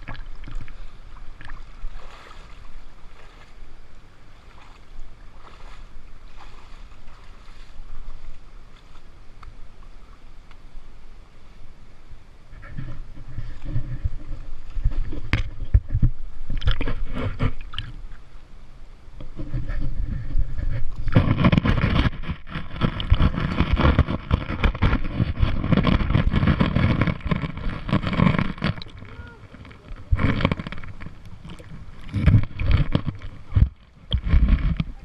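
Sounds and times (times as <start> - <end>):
wind buffeting microphone: 12.5 - 18.0, 19.2 - 35.0.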